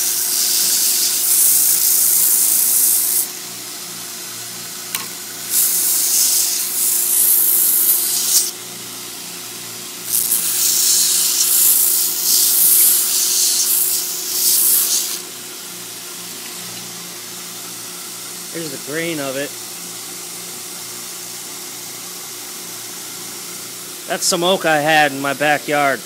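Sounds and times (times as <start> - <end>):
belt grinder motor hum: 0.0 - 3.3, 4.9 - 8.5, 10.0 - 15.3
belt sanding hiss: 0.0 - 3.3, 5.4 - 8.6, 10.1 - 15.3.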